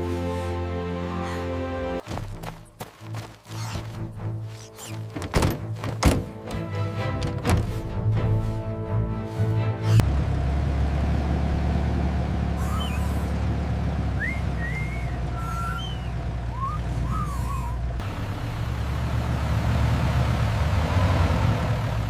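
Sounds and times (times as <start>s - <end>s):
heavy vehicle engine rumbling: 5.0s - 22.0s.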